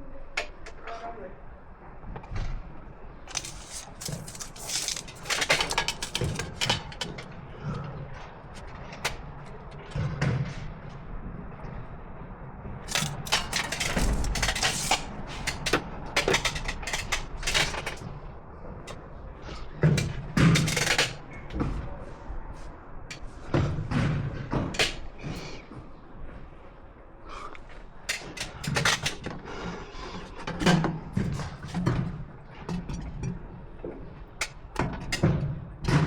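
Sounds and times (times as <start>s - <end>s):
clicks knocks and clatter: 3.3s - 7.4s, 12.9s - 18.1s, 19.8s - 21.6s, 28.1s - 29.4s.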